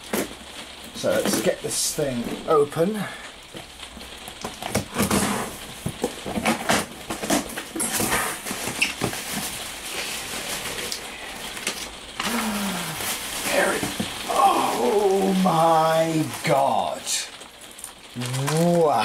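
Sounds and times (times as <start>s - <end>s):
packaging being torn open: 17.3s - 19.0s.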